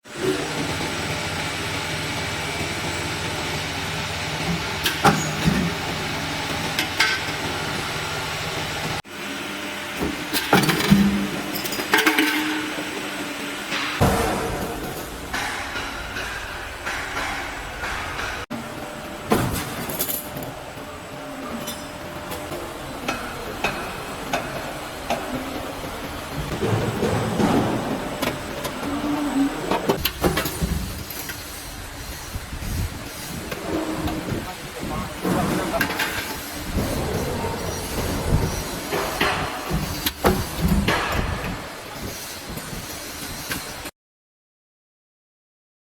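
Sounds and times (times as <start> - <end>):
roll forming machine running: 0.1 - 43.4
sharp knocks: 13.8 - 18.5.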